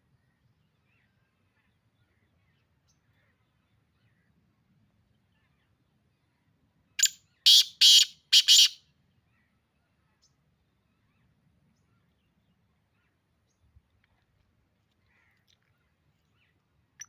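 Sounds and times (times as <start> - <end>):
bird harsh rasping call: 7.0 - 8.8.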